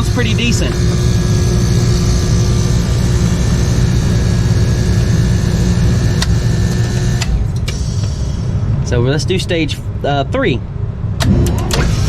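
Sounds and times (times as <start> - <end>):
compressor humming: 0.0 - 9.7.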